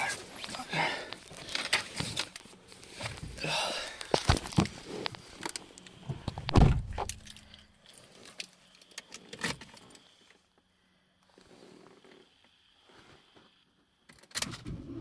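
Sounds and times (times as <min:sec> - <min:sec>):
heavy thump: 0:06.1 - 0:07.2.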